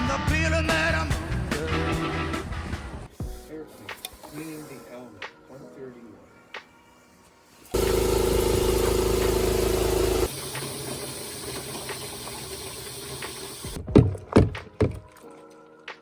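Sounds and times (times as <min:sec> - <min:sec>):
motorcycle engine running: 0:07.8 - 0:10.3.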